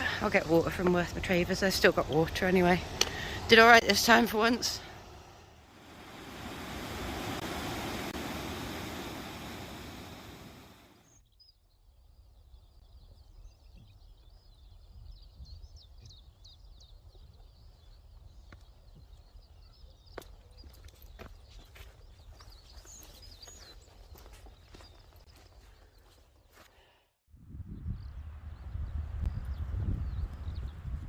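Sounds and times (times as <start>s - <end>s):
broad rushing noise: 0.0s - 11.1s
small birds chirping: 0.0s - 26.8s.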